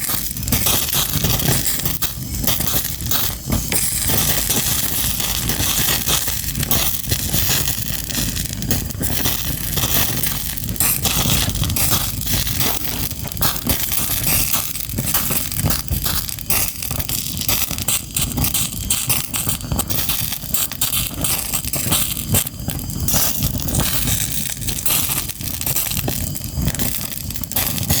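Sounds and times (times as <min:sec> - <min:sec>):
fire crackling: 0:00.0 - 0:28.0.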